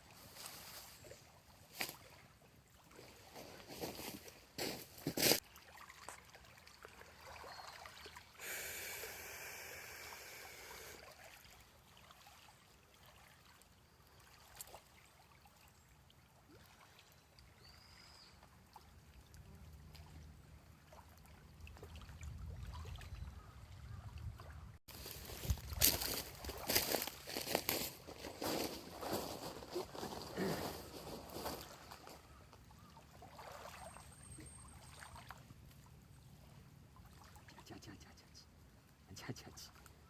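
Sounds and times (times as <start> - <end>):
loud hiss: 8.4 - 11.0.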